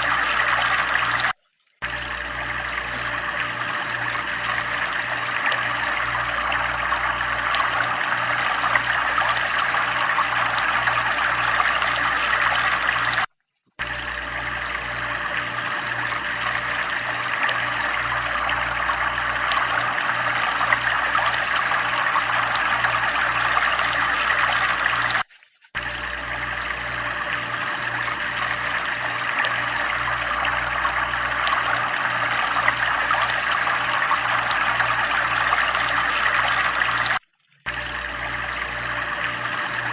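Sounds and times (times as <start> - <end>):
water rushing and splashing: 28.5 - 37.2.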